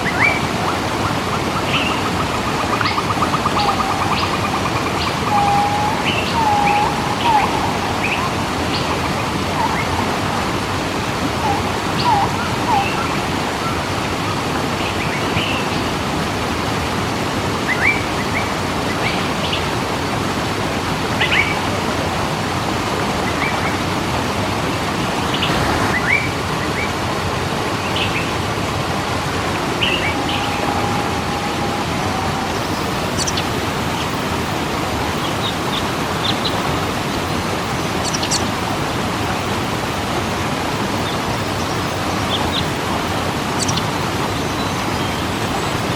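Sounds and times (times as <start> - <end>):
birds chirping: 0.0 - 13.4, 27.6 - 39.6, 40.9 - 45.9
waterfall rushing: 0.0 - 45.9.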